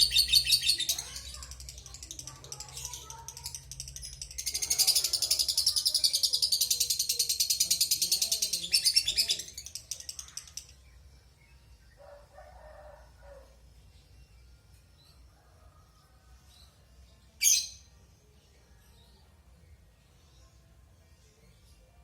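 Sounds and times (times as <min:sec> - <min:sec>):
bird chattering trill: 0:00.0 - 0:10.8.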